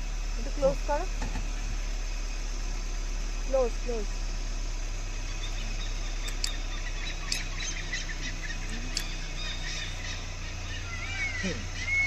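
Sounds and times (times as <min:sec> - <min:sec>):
steady low hum: 0:00.0 - 0:12.0
small birds chirping: 0:04.7 - 0:12.0.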